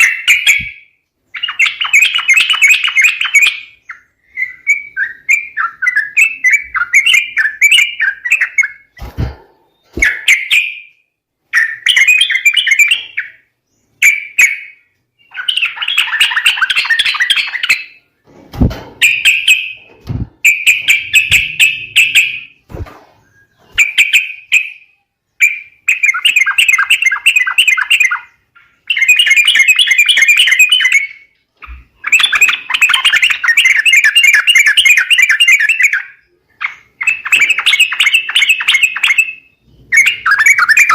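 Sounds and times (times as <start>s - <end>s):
low thumps: 18.3s - 23.2s
bulbul chattering: 20.4s - 22.6s.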